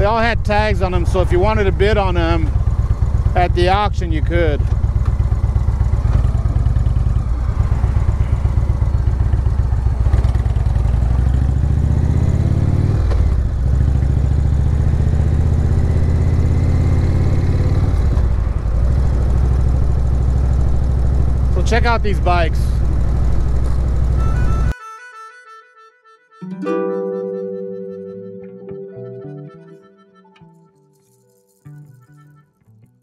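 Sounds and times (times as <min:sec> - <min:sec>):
motorcycle engine running: 0:00.0 - 0:24.7.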